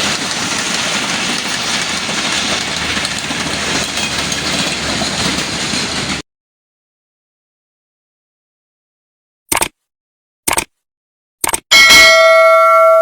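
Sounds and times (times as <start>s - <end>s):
train running on rails: 0.0s - 6.2s.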